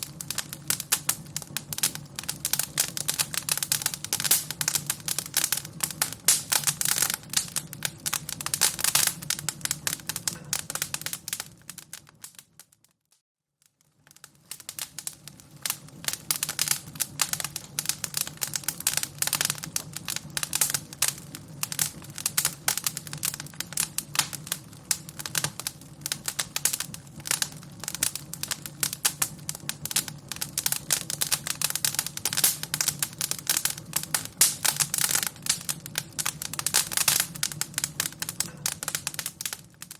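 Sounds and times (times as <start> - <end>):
wood fire crackling: 0.0 - 13.0, 13.6 - 39.9.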